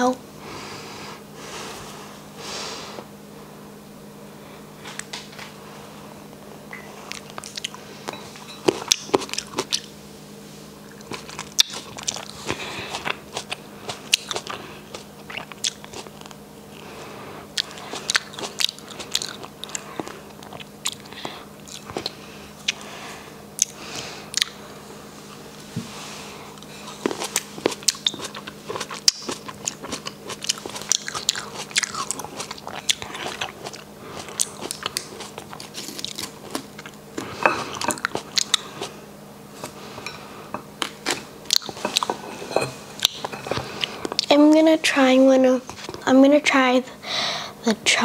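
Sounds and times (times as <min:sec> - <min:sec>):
faint steady hum: 0:00.0 - 0:48.0
crunchy grape chewing: 0:06.8 - 0:10.0, 0:10.6 - 0:44.6.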